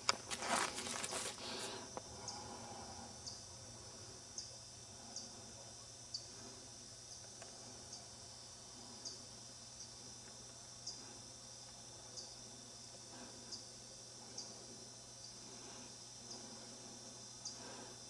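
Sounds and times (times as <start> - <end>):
rustle: 0.0 - 1.8
insect chirps: 0.0 - 18.0
insect high-pitched drone: 0.0 - 18.0.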